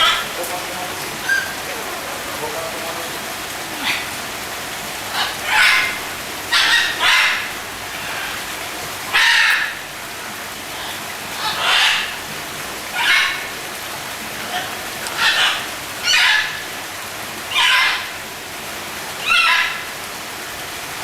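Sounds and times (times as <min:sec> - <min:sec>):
bird squawking: 0:00.0 - 0:04.2, 0:05.1 - 0:08.5, 0:09.1 - 0:09.9, 0:10.8 - 0:12.2
steady background hiss: 0:00.0 - 0:21.0.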